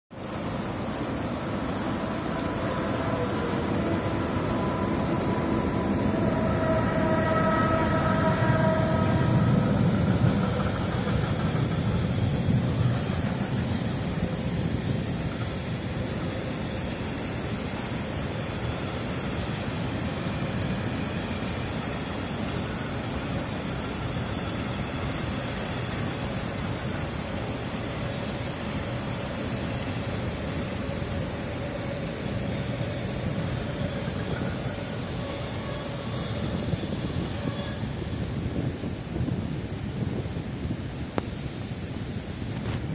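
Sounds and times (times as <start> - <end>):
electric locomotive whine: 0.1 - 42.9
freight wagons rumbling on bridge: 0.8 - 16.0.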